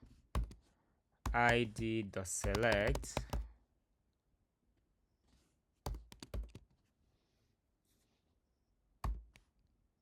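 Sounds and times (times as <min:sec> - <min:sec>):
computer keyboard keystrokes: 0:02.4 - 0:03.5.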